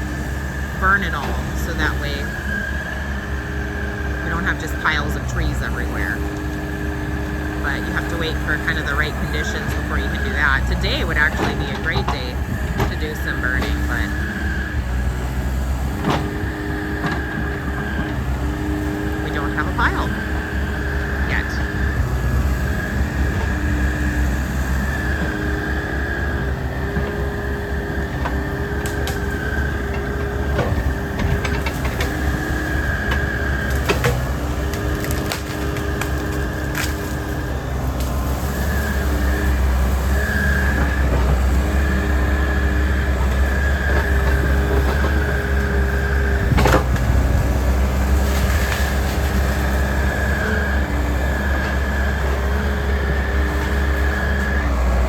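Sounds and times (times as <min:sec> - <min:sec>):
excavator diesel engine whine: 0:00.0 - 0:55.0
wood cracking and splintering: 0:22.3 - 0:55.0.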